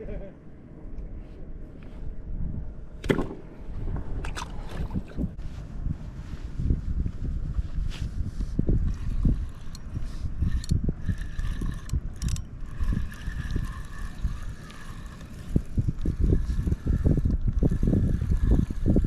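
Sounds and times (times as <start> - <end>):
low wind: 0.0 - 19.0
fishing reel clicks: 8.8 - 19.0
fishing reel whirring: 8.8 - 19.0.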